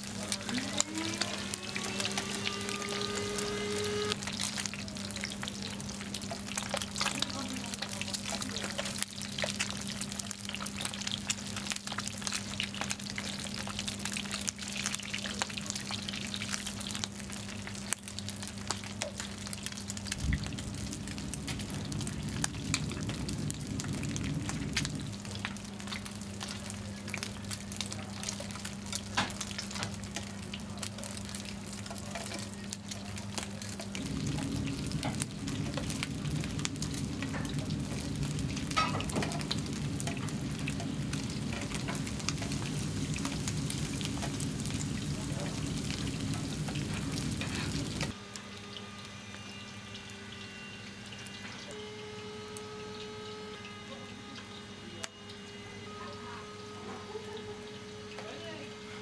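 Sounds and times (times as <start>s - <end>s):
food frying in hot oil: 0.0s - 59.0s
steady low hum: 19.6s - 27.6s, 32.9s - 50.8s
heavy low rumble: 19.7s - 26.6s, 33.3s - 48.1s.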